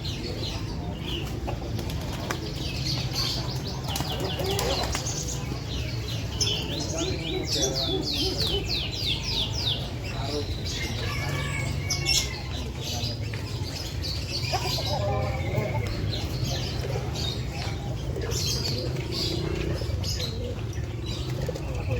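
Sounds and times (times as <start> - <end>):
birds chirping and calling: 0.0 - 21.9
pigeons cooing: 0.0 - 21.9
wings flapping: 1.7 - 3.0, 3.6 - 5.3.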